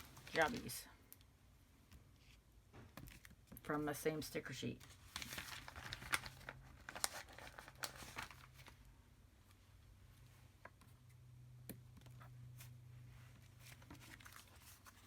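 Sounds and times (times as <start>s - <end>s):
paper rustling: 0.0s - 0.8s, 4.8s - 8.8s, 13.3s - 15.0s
paper crackling: 0.0s - 0.9s, 4.8s - 8.9s, 13.5s - 15.0s
low steady hum: 0.0s - 15.0s.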